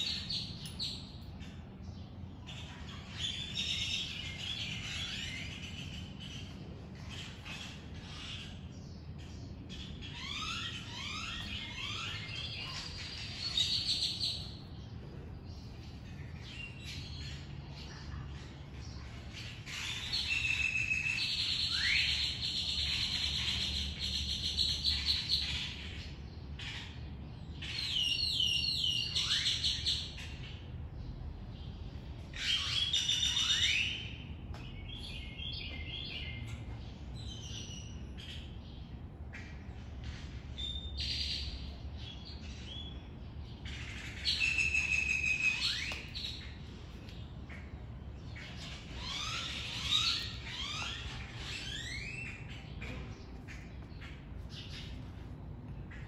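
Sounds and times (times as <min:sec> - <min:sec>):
songbirds singing and chirping: 0:00.0 - 0:56.0.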